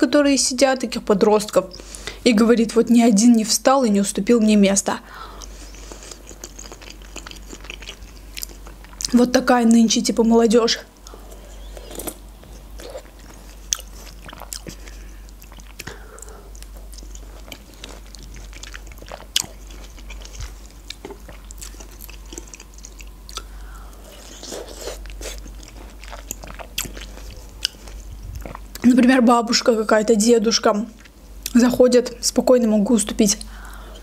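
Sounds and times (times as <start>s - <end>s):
person chewing grapefruit: 5.2s - 9.2s, 11.0s - 28.8s.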